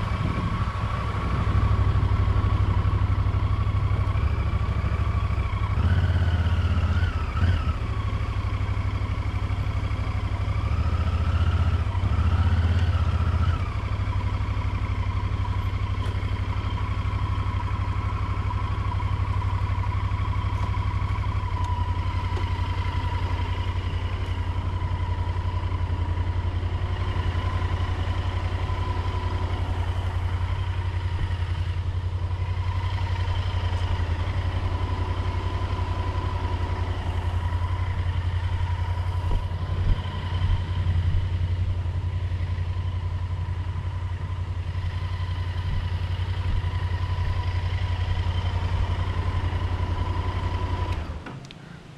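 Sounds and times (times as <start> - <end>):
motorcycle engine running: 0.0 - 51.7.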